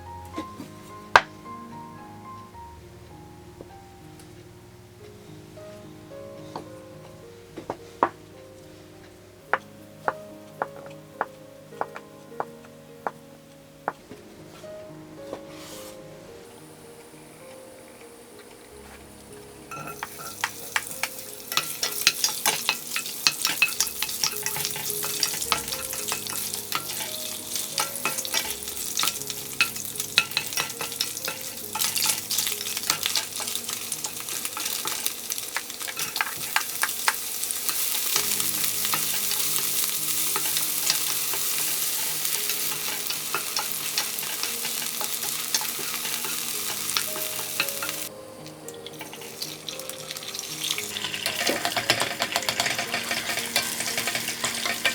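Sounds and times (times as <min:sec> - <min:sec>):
food sizzling in frying pan: 0:00.0 - 0:02.6, 0:15.2 - 0:54.9
spatula scraping pan: 0:19.7 - 0:48.1, 0:49.0 - 0:54.9.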